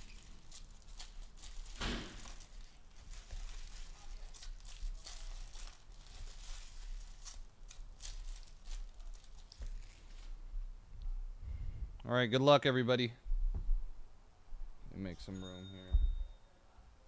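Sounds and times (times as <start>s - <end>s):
plastic wrapping tearing and crinkling: 0.0s - 10.4s.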